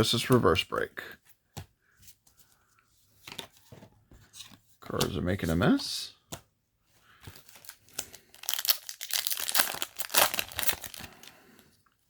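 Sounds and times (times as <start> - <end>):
foil wrapper crinkling: 7.4 - 11.5.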